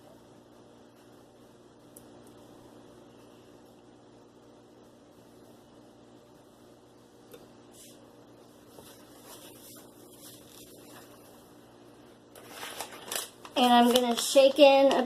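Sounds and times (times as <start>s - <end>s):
soft handling sounds: 8.6s - 11.4s.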